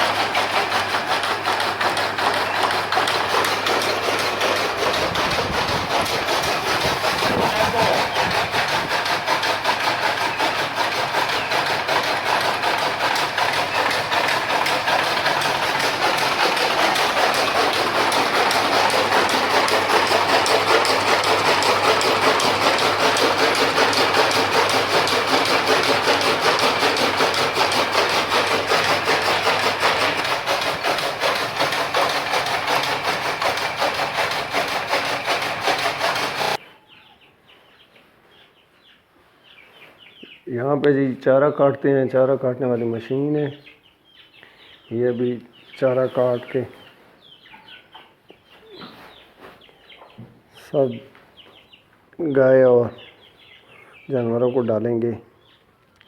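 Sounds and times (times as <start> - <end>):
chaff cutter clattering: 0.0 - 36.6.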